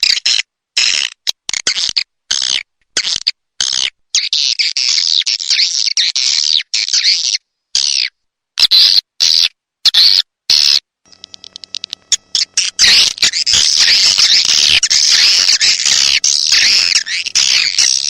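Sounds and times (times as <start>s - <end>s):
high rapid bird chirping: 11.1s - 18.0s.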